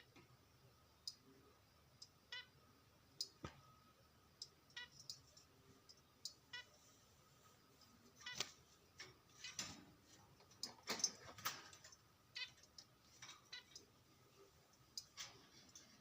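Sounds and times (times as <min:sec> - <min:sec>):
zebra finches calling: 0:12.3 - 0:12.7.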